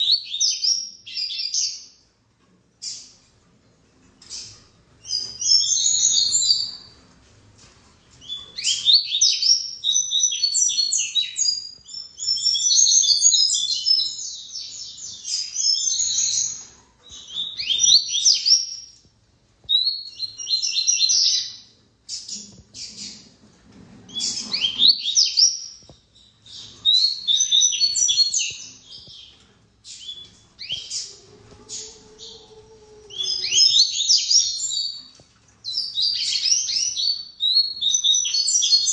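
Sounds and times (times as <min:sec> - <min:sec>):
bird singing fast chattering song: 0:04.2 - 0:06.8.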